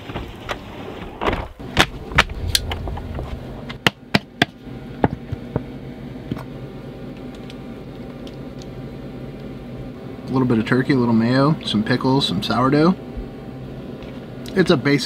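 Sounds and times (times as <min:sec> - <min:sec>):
low hum: 0:01.6 - 0:05.0.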